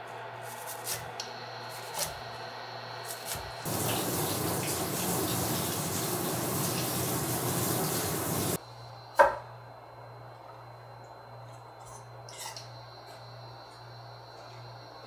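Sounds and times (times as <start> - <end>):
water running from a tap: 3.6 - 8.6.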